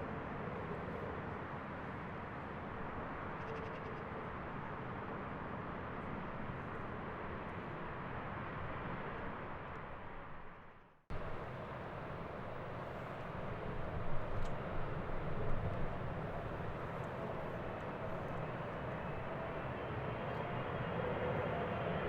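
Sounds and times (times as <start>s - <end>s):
jet engines rushing in flight: 11.1s - 22.0s.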